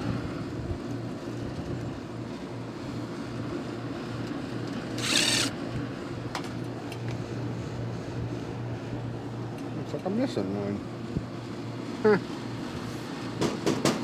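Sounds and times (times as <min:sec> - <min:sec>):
air conditioner unit humming: 0:00.0 - 0:14.0
short rasping burst: 0:05.0 - 0:05.5.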